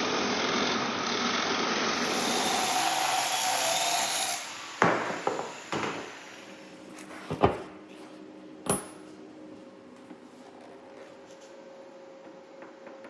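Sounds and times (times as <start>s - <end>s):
power tool stopping: 0.1s - 7.2s.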